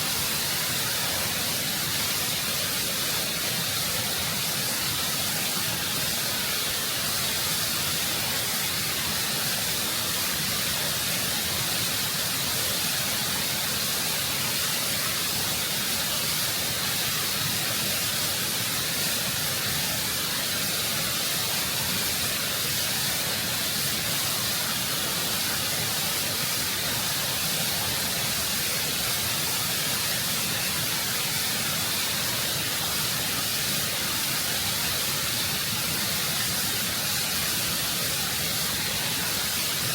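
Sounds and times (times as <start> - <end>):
waterfall rushing over rock: 0.0 - 39.9.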